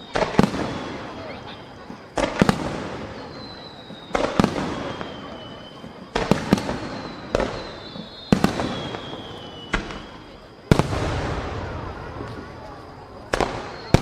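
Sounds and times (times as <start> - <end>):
firework shells booming: 0.0 - 14.0
high whistle sliding down: 6.8 - 10.4.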